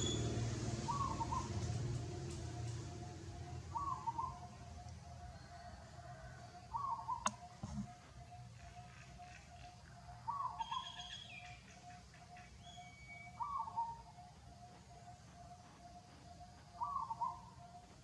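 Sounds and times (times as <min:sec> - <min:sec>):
sharp click: 0:07.2 - 0:07.8.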